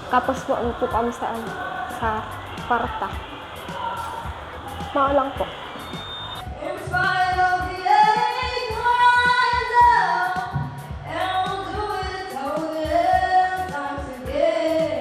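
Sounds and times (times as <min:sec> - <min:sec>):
backing track with beat: 0:00.0 - 0:14.4
young woman singing: 0:06.5 - 0:15.0.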